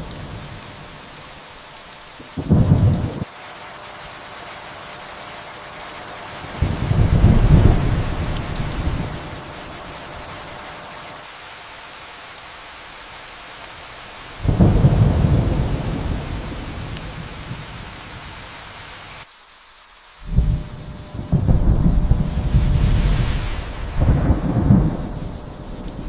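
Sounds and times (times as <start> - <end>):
steady rain: 0.0 - 26.0
thunder rumbling: 2.2 - 3.3, 6.4 - 10.8, 14.4 - 18.2, 20.2 - 26.0.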